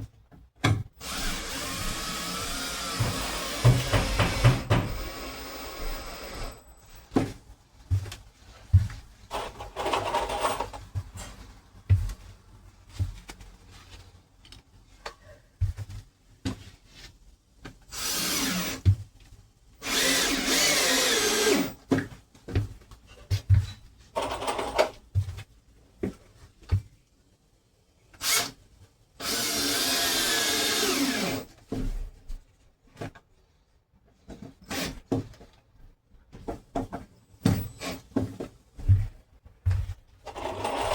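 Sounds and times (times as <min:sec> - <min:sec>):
power drill running: 0:01.0 - 0:06.7, 0:17.9 - 0:18.8, 0:19.8 - 0:21.8, 0:29.2 - 0:31.5.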